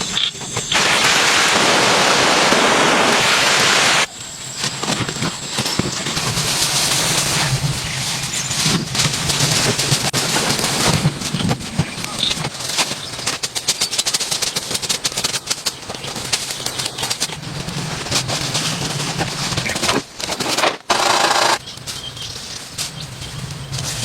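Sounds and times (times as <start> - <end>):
heavy rain hissing: 0.0 - 4.5.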